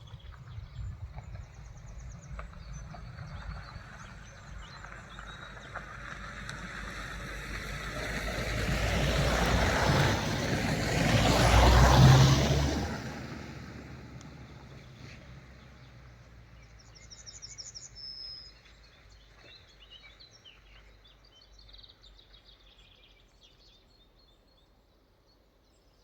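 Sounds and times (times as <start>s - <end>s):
faint birdsong: 0.0s - 10.0s, 14.2s - 26.0s
vehicle passing by: 0.1s - 17.0s.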